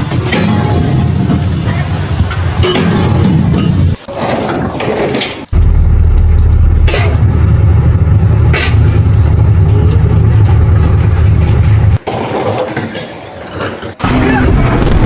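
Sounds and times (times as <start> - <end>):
heavy engine rumbling: 0.0 - 12.0.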